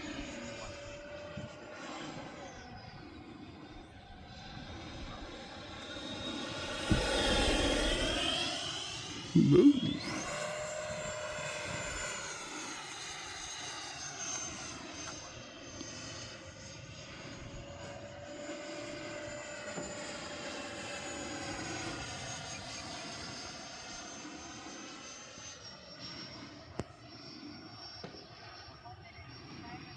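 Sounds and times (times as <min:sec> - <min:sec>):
model jet ducted-fan whine: 0:00.0 - 0:29.9
person exclaiming: 0:09.3 - 0:10.0.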